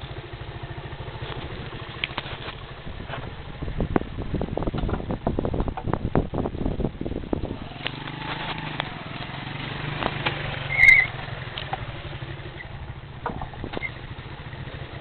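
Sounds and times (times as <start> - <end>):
small engine running: 7.4 - 15.0
loud high chirp: 10.7 - 11.2.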